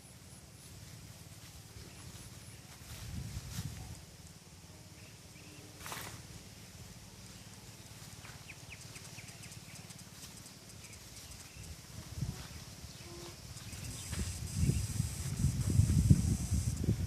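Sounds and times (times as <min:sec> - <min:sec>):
bird chirping: 0:07.2 - 0:11.8.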